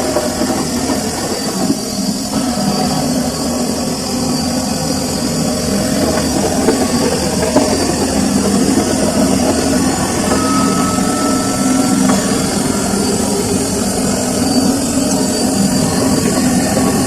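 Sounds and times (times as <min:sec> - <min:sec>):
washing machine humming: 0:00.0 - 0:17.0
faint high tone: 0:10.3 - 0:15.6.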